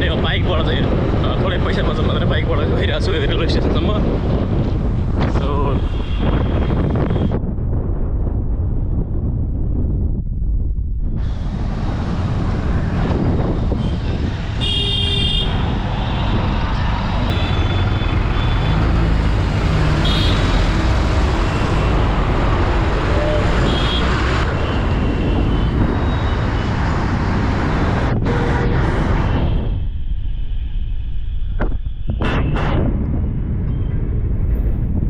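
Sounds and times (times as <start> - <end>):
wind and road rumble: 0.0 - 35.0
vehicle horns honking: 14.6 - 16.3, 17.3 - 19.0, 19.9 - 22.2, 23.2 - 24.4.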